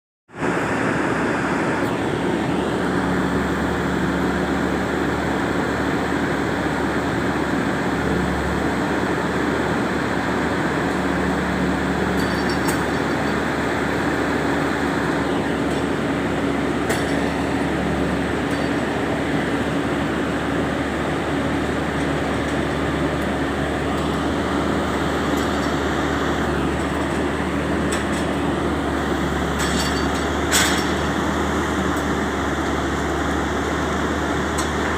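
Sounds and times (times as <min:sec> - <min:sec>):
diesel engine under load: 0:00.3 - 0:34.9.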